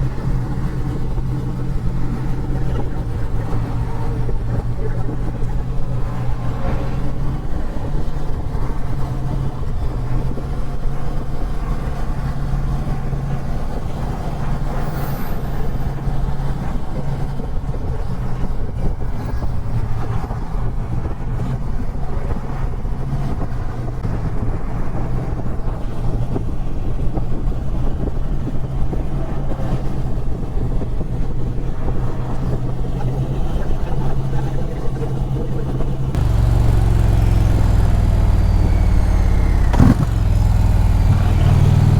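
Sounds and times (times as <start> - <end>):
wind and road rush: 0.0 - 41.9
motorcycle engine cruising: 36.1 - 41.9.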